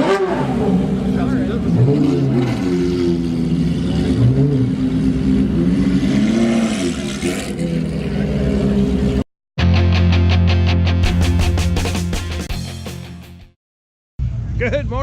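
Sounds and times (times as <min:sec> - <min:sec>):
car engine revving: 0:00.0 - 0:09.2.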